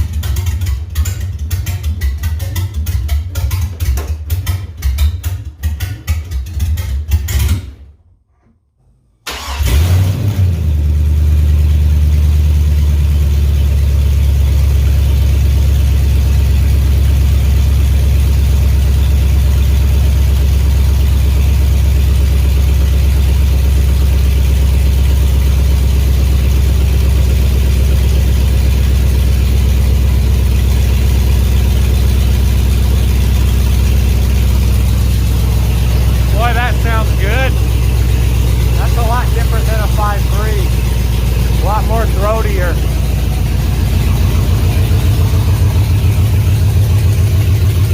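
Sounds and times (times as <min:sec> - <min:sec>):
engine starting and idling: 0:05.2 - 0:12.9, 0:31.8 - 0:47.9.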